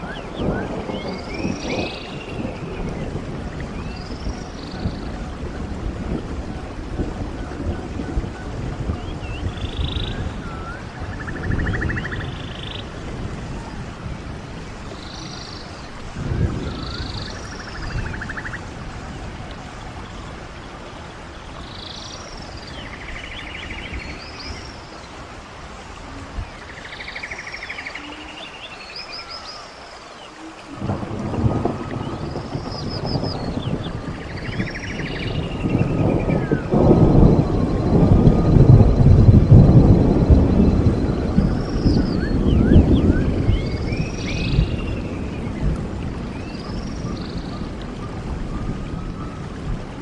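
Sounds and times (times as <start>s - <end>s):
stream water running: 0.0s - 50.0s.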